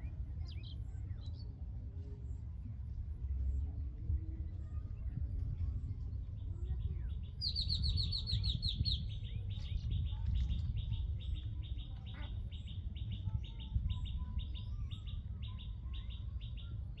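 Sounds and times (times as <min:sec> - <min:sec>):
steady low rumble: 0:00.0 - 0:17.0
small birds chirping: 0:07.2 - 0:16.9.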